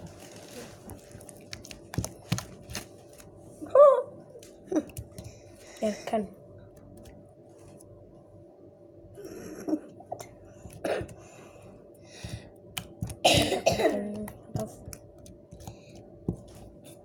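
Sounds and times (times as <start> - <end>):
person clearing throat: 10.8 - 11.2, 13.2 - 14.2
person coughing: 10.8 - 11.2, 13.2 - 14.2.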